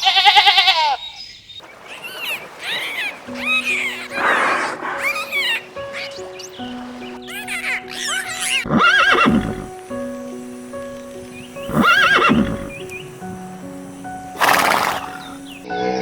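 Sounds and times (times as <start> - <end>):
farm animal calling: 0.0 - 9.8, 11.6 - 12.9, 14.4 - 15.7
background music with held notes: 3.2 - 16.0.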